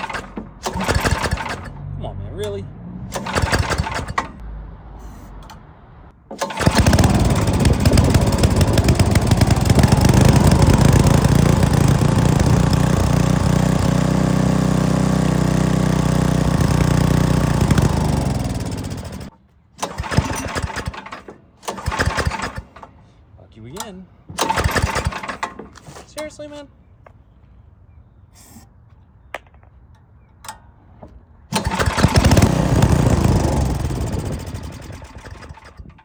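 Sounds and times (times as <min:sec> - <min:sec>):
small gasoline engine running: 0:00.0 - 0:01.8, 0:03.1 - 0:04.3, 0:06.4 - 0:22.6, 0:24.4 - 0:25.5, 0:31.5 - 0:36.0
engine stalling: 0:00.0 - 0:04.4, 0:06.3 - 0:23.0, 0:24.4 - 0:26.1, 0:31.5 - 0:36.0.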